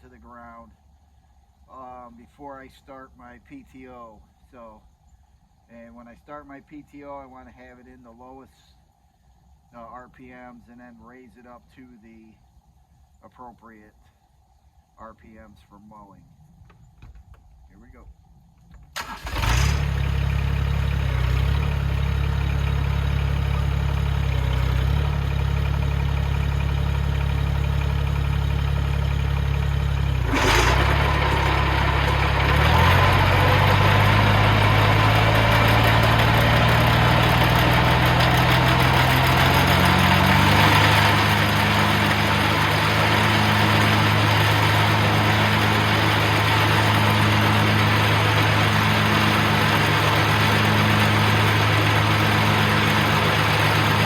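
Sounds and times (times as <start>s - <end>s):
spinning mower deck: 19.0s - 54.0s
tractor diesel engine running: 19.0s - 54.0s.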